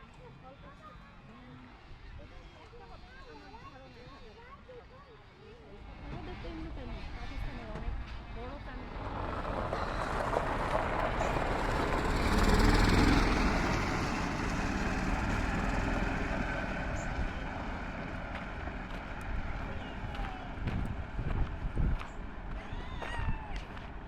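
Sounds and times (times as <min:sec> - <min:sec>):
motor vehicle passing: 0:05.5 - 0:24.0.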